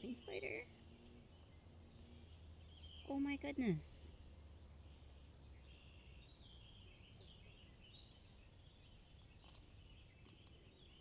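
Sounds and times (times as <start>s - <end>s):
faint birdsong: 0.0s - 11.0s
outdoor background noise: 0.0s - 11.0s.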